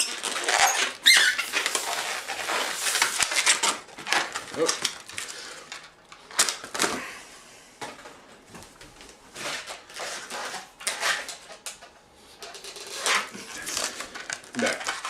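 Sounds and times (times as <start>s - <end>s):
balloon rubbing and squeaking: 0.0s - 3.5s.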